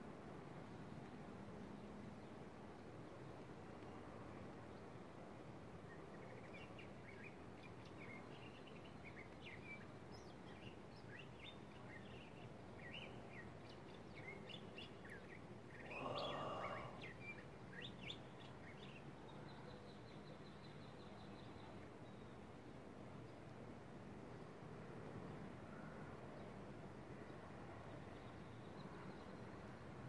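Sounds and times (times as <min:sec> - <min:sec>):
small birds chirping: 0:05.8 - 0:22.4.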